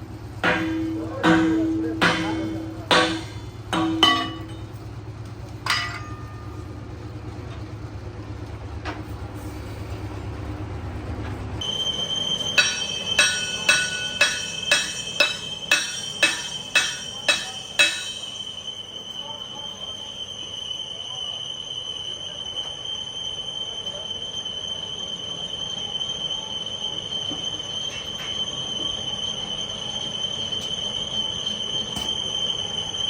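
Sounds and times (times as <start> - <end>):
low machine hum: 0.0 - 18.5
hammer blows on steel: 0.4 - 4.8, 11.6 - 18.6
sharp metal knocks: 0.4 - 4.8, 5.6 - 6.7, 12.5 - 18.4.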